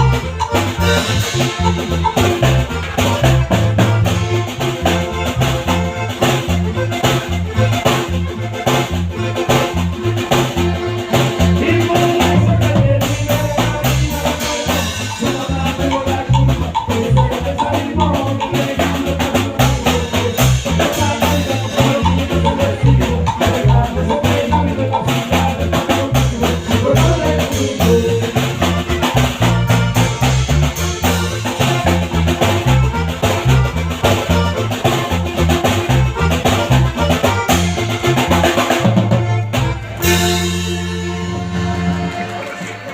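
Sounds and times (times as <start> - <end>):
band playing with steady beat: 0.0 - 42.9.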